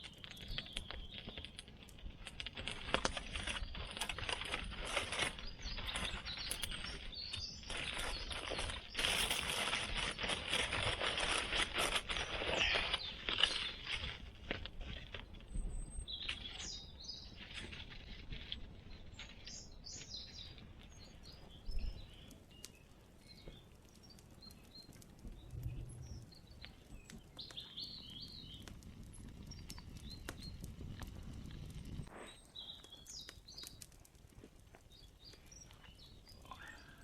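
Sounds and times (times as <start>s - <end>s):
songbirds chirping: 0.0s - 37.0s
rustling handling noises: 0.1s - 15.4s.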